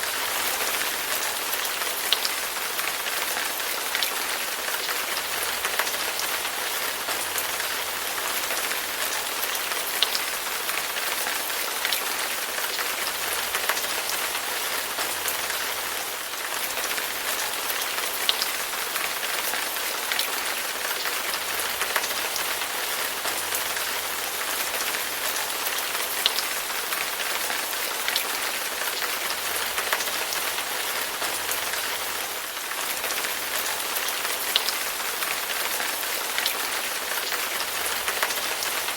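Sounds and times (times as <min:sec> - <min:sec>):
rain on a hard surface: 0:00.0 - 0:38.9.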